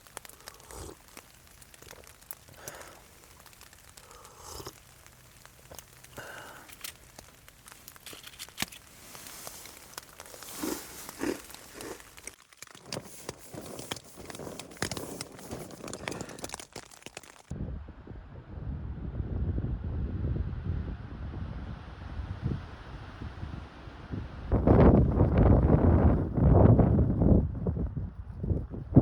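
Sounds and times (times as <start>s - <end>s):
crinkling and rustling: 0.0s - 17.5s.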